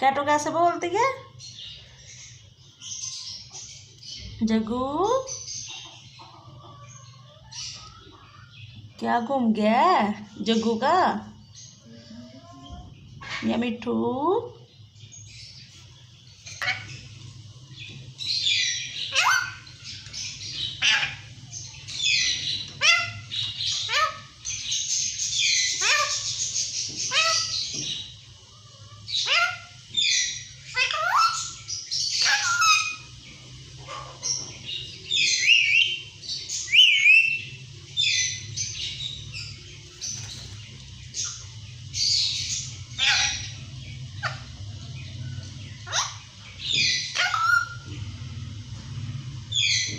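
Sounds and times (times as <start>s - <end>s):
parrot screeching: 16.6s - 17.0s, 18.5s - 19.8s, 20.8s - 21.3s, 22.0s - 24.4s, 25.4s - 26.4s, 27.0s - 27.7s, 28.6s - 33.1s, 43.0s - 43.6s, 45.8s - 47.9s.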